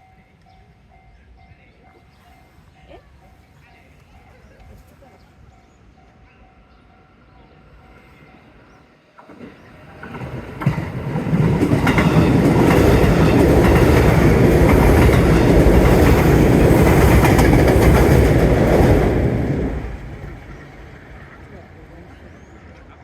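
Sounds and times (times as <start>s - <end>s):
train passing with wheels clacking: 0.0s - 23.0s.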